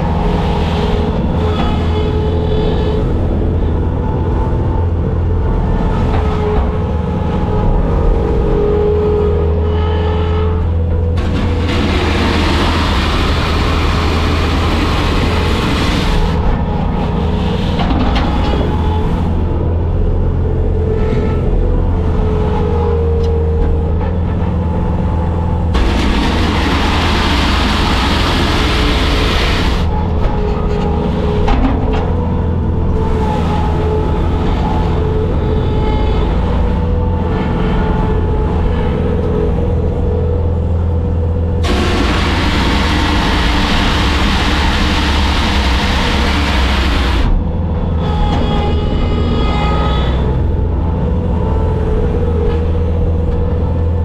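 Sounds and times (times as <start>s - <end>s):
diesel engine running: 0.0s - 54.0s
loud rushing noise: 25.7s - 30.0s, 41.6s - 47.4s.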